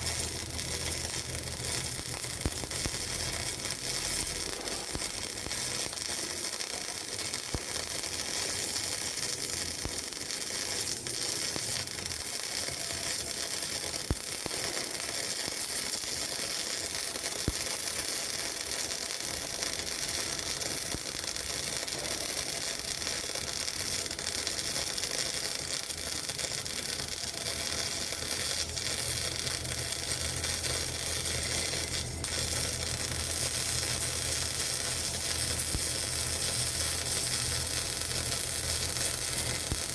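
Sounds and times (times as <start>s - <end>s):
sharp welding pops: 0.0s - 39.9s
welding arc sizzling: 0.0s - 39.9s.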